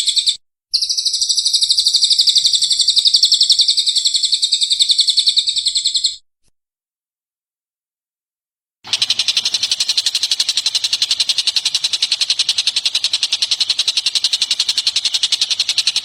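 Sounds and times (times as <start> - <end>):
songbird trilling: 0.0 - 6.2.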